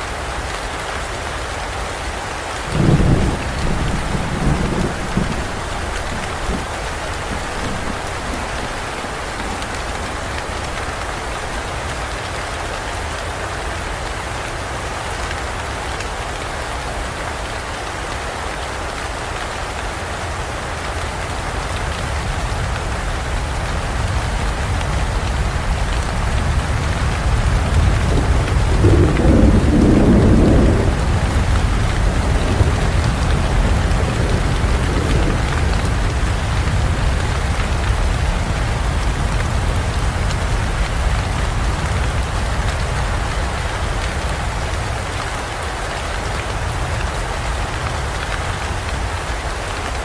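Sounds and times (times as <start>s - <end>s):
heavy rain on foliage: 0.0s - 50.0s
thunder rumble: 2.7s - 12.3s, 22.2s - 44.7s.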